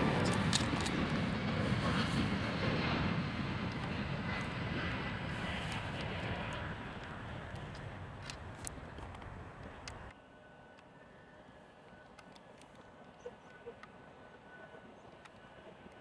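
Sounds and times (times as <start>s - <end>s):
airliner engines rumbling: 0.0s - 10.1s.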